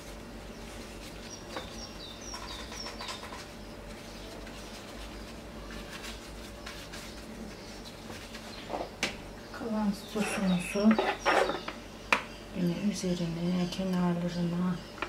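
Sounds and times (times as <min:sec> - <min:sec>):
pastry sheets rustling: 0:00.0 - 0:09.0
bird chirping: 0:00.4 - 0:05.9, 0:06.6 - 0:15.0.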